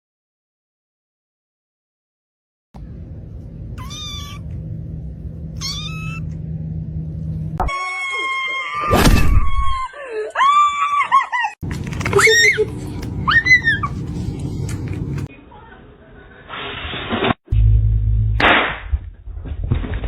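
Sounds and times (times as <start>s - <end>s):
steady low hum: 2.8s - 7.6s, 11.6s - 15.3s
cat meowing and yowling: 3.8s - 4.4s, 5.6s - 6.2s.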